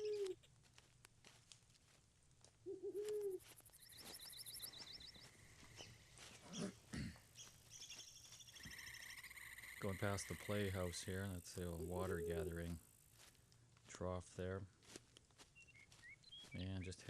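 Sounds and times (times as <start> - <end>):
bird hooting call: 0.0 - 0.4, 2.7 - 5.2, 8.6 - 10.5, 12.1 - 12.5
crunching footsteps: 0.0 - 8.9, 9.8 - 17.0
high bird chirps: 3.6 - 6.7, 7.4 - 10.7, 15.5 - 17.0.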